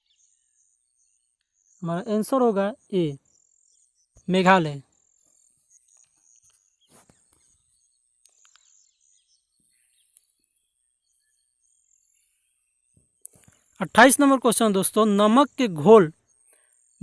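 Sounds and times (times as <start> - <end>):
faint ticks: 8.2 - 8.8.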